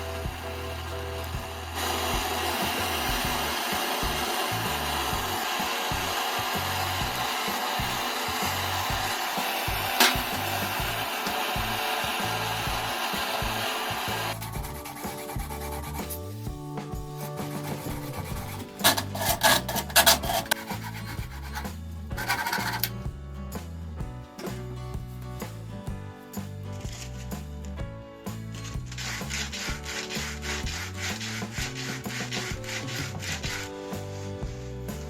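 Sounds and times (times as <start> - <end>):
gas torch flame hissing: 0.0 - 16.4, 17.2 - 22.9
background music with bass: 0.0 - 35.0.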